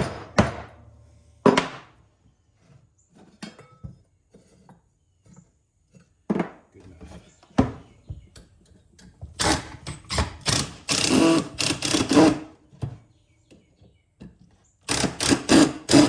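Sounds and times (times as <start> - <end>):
cordless drill driving screws: 9.4 - 12.5, 14.9 - 16.0.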